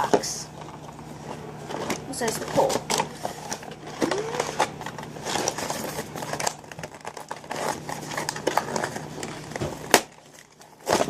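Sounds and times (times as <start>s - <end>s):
packaging crinkling and rustling: 0.5s - 11.0s.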